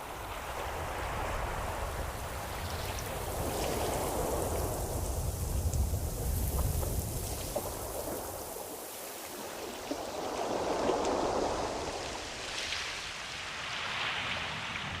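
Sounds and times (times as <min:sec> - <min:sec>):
ocean waves washing in: 0:00.0 - 0:15.0.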